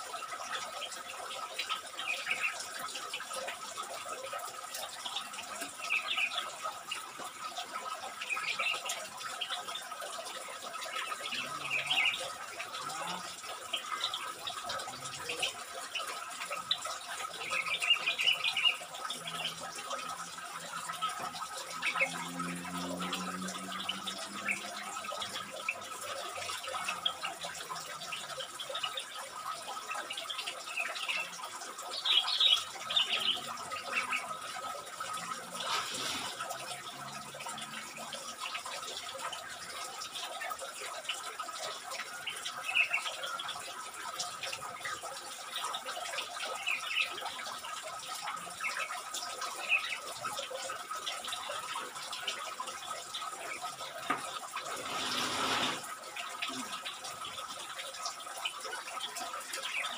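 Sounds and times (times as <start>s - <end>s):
songbirds chirping: 0.0s - 45.2s.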